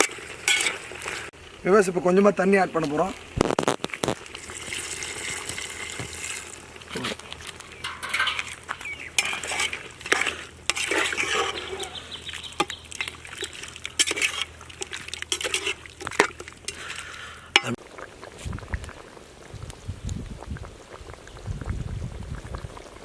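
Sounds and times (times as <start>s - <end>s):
ladle clinking and scraping pot: 0.0s - 1.3s, 7.4s - 17.8s
gravy sizzling and bubbling: 0.0s - 23.0s.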